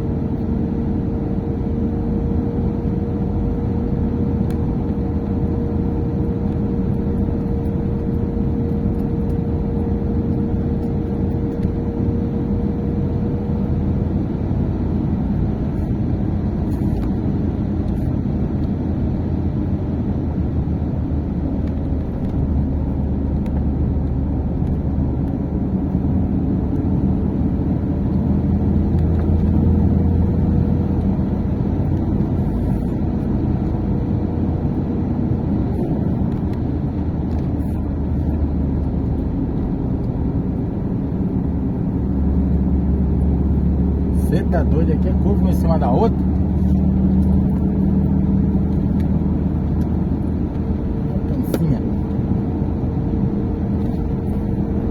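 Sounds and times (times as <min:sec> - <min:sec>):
vehicle engine and road noise: 0:00.0 - 0:54.9.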